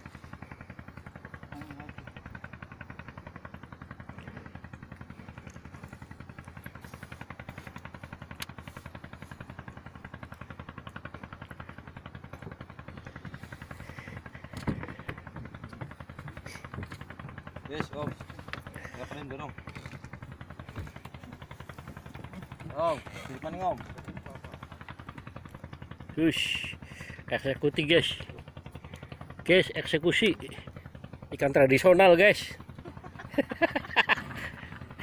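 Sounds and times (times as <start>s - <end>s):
boat engine chugging: 0.0s - 35.0s.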